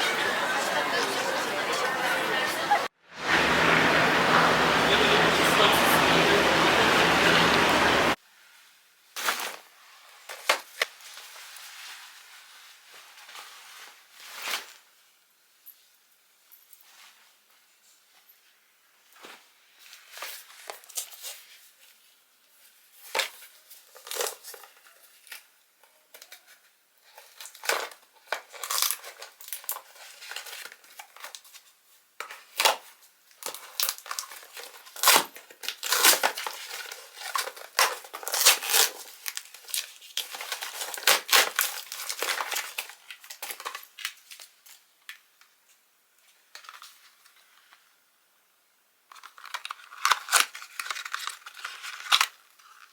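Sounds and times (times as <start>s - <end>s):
material crinkling and tearing: 27.1s - 44.8s, 49.1s - 52.9s.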